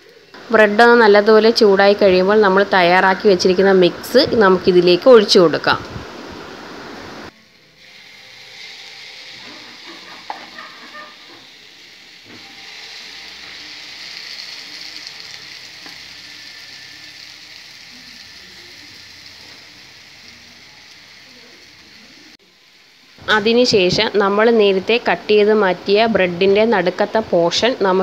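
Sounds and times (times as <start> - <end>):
egg mixture sizzling in oil: 7.4 - 25.2.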